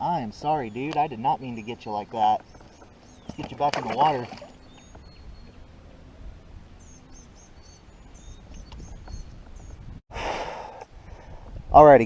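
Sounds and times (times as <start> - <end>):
faint outdoor background noise: 0.0 - 12.0
small birds chirping: 0.2 - 5.9, 6.8 - 9.9.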